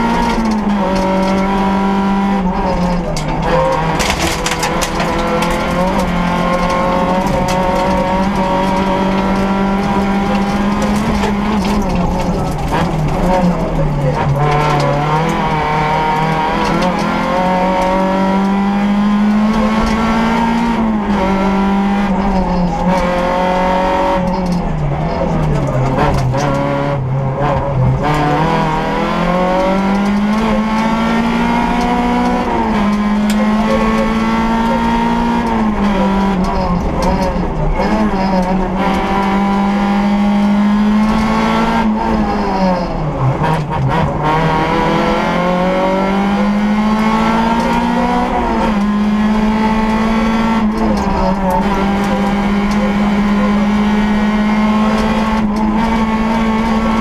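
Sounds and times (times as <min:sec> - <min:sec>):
car engine revving from inside cabin: 0:28.0 - 0:42.8, 0:43.4 - 0:57.0.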